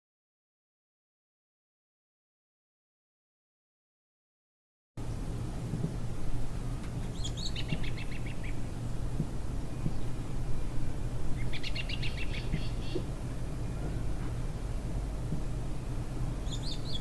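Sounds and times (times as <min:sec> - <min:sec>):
low outdoor rumble: 0:05.0 - 0:17.0
bird chirping: 0:07.0 - 0:08.6, 0:11.4 - 0:14.2, 0:16.4 - 0:17.0.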